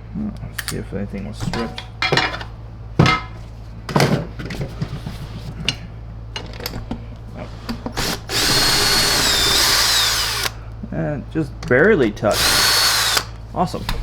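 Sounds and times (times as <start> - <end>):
power drill whining: 7.9 - 10.6, 12.3 - 13.4.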